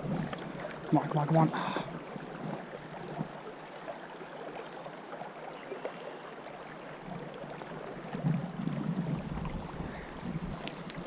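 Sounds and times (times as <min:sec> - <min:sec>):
shallow river babbling: 0:00.0 - 0:11.0
wind buffeting microphone: 0:08.2 - 0:11.0.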